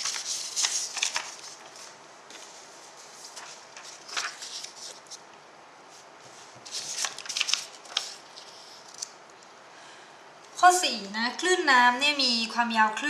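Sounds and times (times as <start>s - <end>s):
paper rustling: 0.0s - 5.2s, 6.0s - 9.2s.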